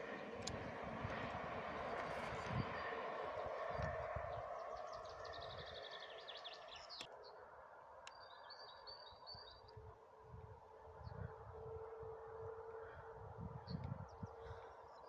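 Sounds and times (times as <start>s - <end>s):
small birds chirping: 0.0s - 7.3s.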